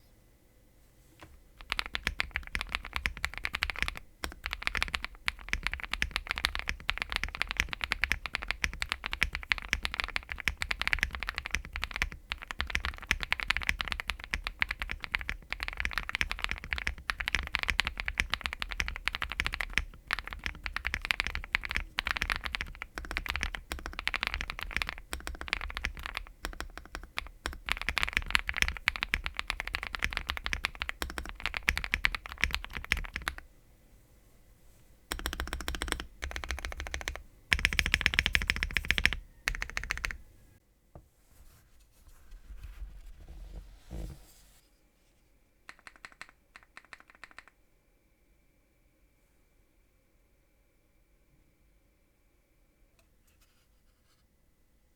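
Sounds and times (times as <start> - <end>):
fast mechanical keyboard typing: 1.6 - 33.4, 35.1 - 40.2, 45.7 - 47.6.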